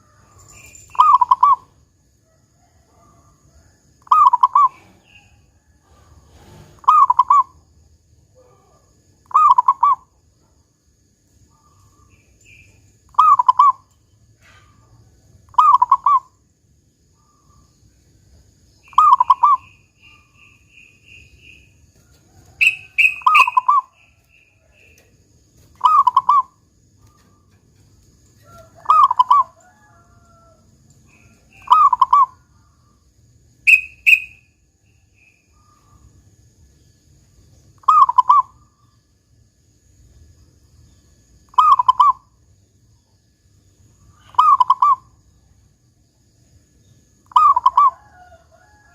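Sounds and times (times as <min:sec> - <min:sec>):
dove cooing: 0:05.9 - 0:07.6, 0:25.8 - 0:27.5, 0:28.6 - 0:29.8
short high chirps: 0:33.7 - 0:34.4.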